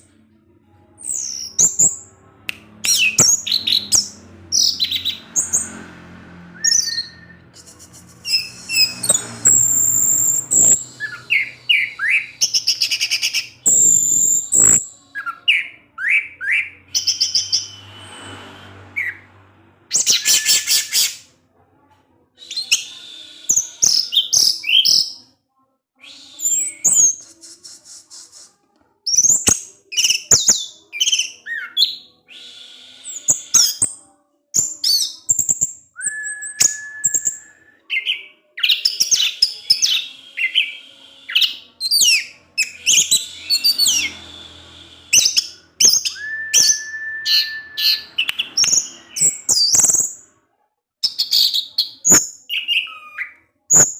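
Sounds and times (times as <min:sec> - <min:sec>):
thrush singing: 0:00.0 - 0:21.3, 0:34.6 - 0:50.0
long steady bird whistle: 0:32.0 - 0:33.8, 0:35.2 - 0:50.0.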